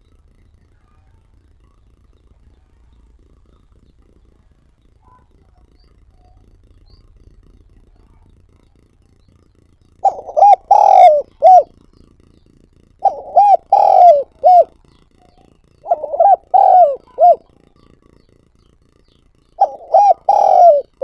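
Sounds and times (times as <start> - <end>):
dove cooing: 10.0 - 11.8, 13.0 - 18.2, 19.6 - 21.0.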